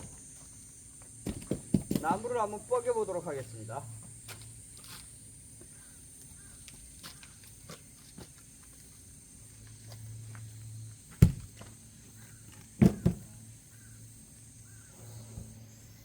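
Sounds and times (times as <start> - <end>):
axe striking a log: 11.2 - 11.5, 12.8 - 13.3.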